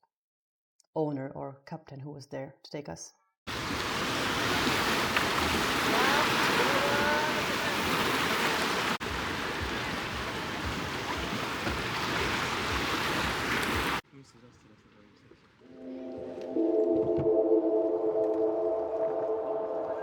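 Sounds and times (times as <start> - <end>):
sea surf: 3.5 - 14.0
wind buffeting microphone: 7.4 - 14.0.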